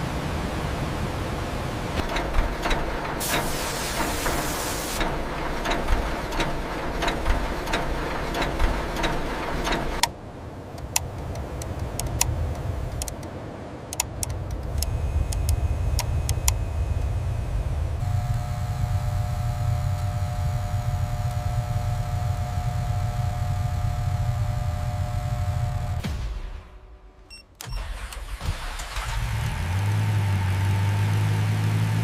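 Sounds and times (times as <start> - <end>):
low machine rumble: 1.4 - 13.1, 14.4 - 27.1
sharp mechanical clicks: 2.0 - 10.1, 10.8 - 13.2, 13.9 - 17.1
steady hiss: 2.0 - 10.1.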